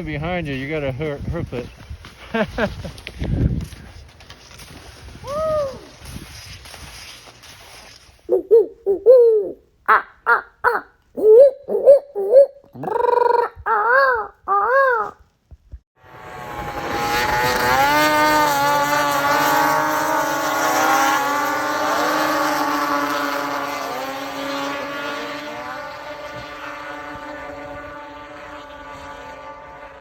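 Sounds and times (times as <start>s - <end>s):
motor engines running: 16.0s - 30.0s.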